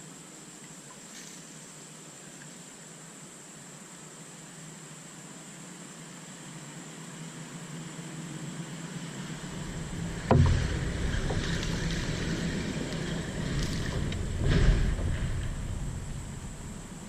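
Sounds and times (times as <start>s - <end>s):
rumbling water and hull noise: 9.2s - 17.0s
sharp knock on kayak: 9.8s - 11.7s.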